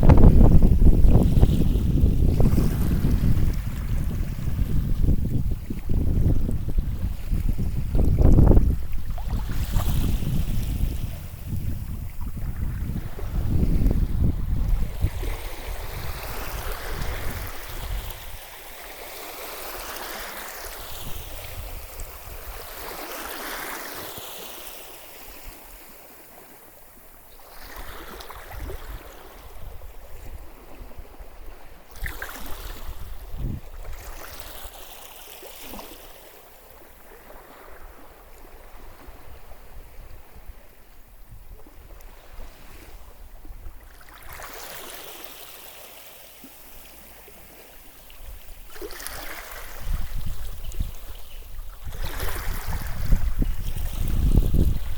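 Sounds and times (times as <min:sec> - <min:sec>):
wind rumbling on microphone: 0:00.0 - 0:18.6, 0:20.7 - 0:23.0, 0:27.6 - 0:34.7, 0:37.2 - 0:44.6, 0:47.2 - 0:54.9.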